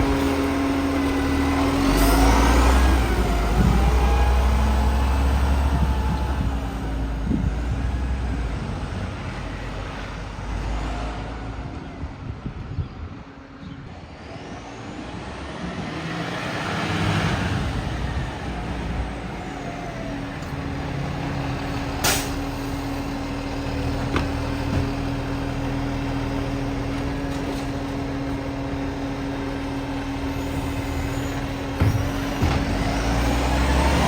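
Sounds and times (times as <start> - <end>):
diesel engine running: 0.0 - 13.6, 16.8 - 34.0.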